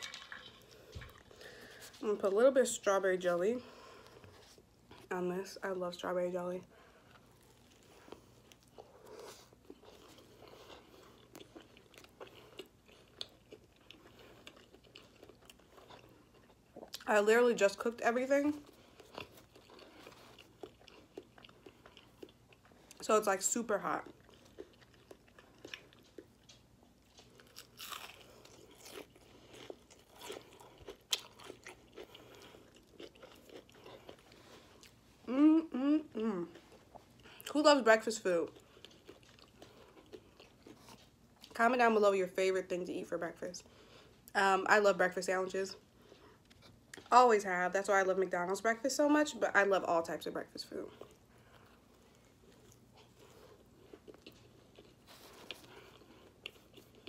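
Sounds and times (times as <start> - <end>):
person chewing a sandwich: 0.0 - 2.0, 3.6 - 5.1, 6.7 - 17.1, 18.6 - 23.0, 23.8 - 37.6, 38.4 - 41.6, 45.8 - 47.1, 50.9 - 57.0.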